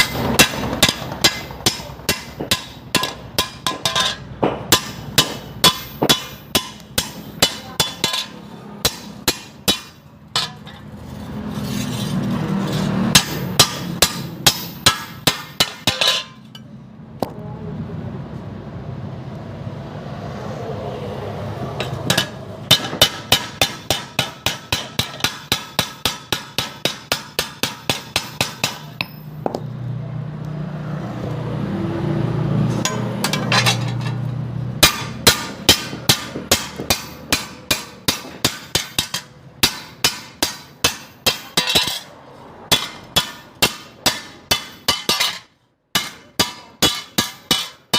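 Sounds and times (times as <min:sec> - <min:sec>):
hammer ringing on metal: 0:00.0 - 0:10.7, 0:13.1 - 0:16.4, 0:21.8 - 0:29.6, 0:34.8 - 0:42.1, 0:42.7 - 0:47.9.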